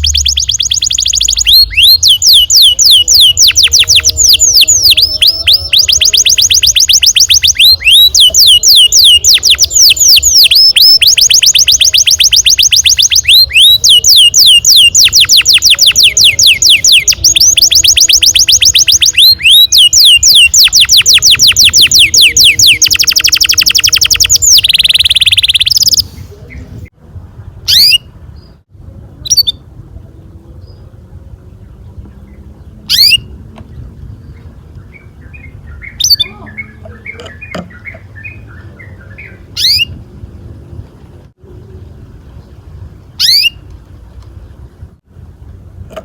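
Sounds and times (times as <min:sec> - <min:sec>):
short bird chirps: 0:00.0 - 0:26.7
canary singing trills: 0:00.0 - 0:28.6, 0:29.2 - 0:29.7, 0:30.6 - 0:40.0, 0:41.6 - 0:43.7.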